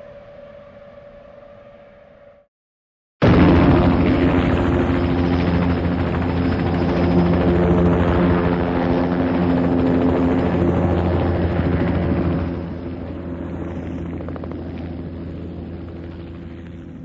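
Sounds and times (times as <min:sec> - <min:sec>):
helicopter engine hum: 0:03.2 - 0:17.0
helicopter rotor beat: 0:03.2 - 0:17.0.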